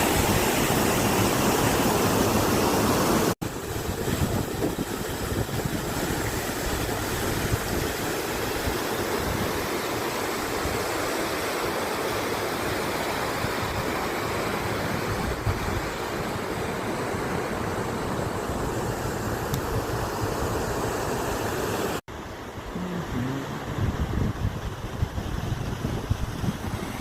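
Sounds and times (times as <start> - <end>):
road and wind noise: 23.6 - 27.0.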